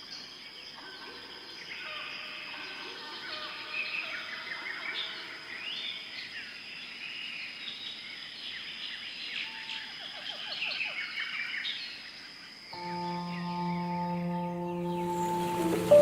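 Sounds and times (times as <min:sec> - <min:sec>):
high insect drone: 0:12.8 - 0:16.0.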